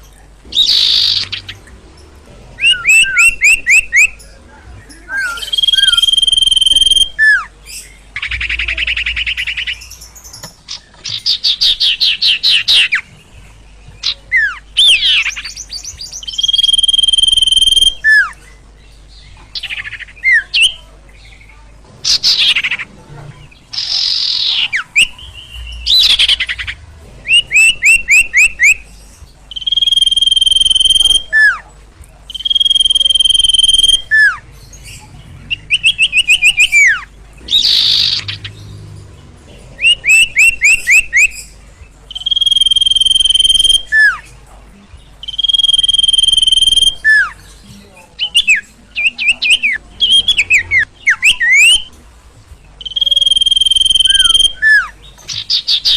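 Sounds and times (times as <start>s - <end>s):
bird whistling and chirping: 0.5s - 1.7s, 2.6s - 13.1s, 14.0s - 18.5s, 23.7s - 31.7s, 32.3s - 38.7s, 39.8s - 44.3s, 45.2s - 47.5s, 48.2s - 52.0s, 52.8s - 55.9s.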